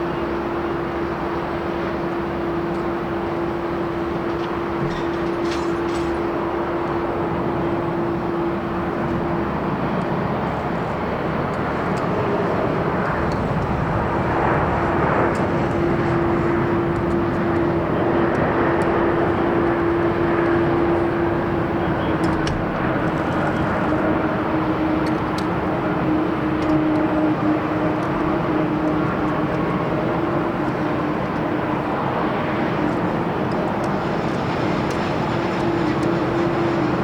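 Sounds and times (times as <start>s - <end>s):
jet engines of landing airliner: 0.0s - 37.0s.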